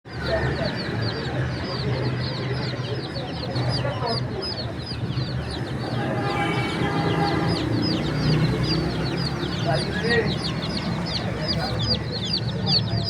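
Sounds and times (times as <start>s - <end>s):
baby chickens peeping: 0.1s - 13.0s
held steady-pitch call: 2.6s - 13.0s.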